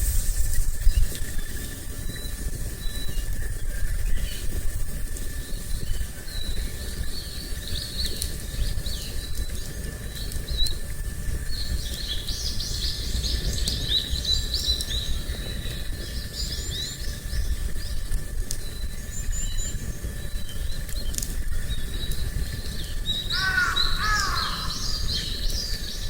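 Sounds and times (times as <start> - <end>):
low rumble: 0.0 - 7.9
small birds chirping: 0.0 - 26.0.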